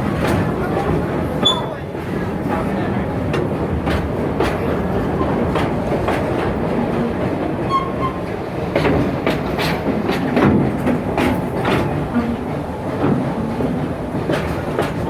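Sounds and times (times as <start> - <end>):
train wheels rumbling on rail: 0.0 - 15.0
high squeak: 1.4 - 1.8.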